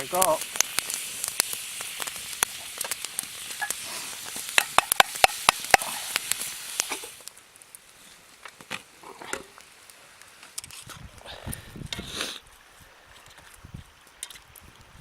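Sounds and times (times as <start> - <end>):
sharp spattering pops: 0.0 - 7.4
meat sizzling in a pan: 0.0 - 8.2.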